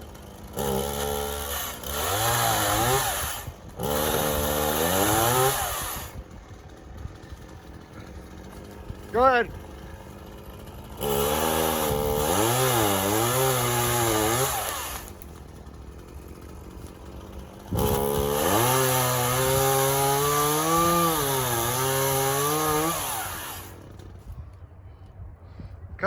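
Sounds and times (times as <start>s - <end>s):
chainsaw cutting tree trunk: 0.0s - 24.3s.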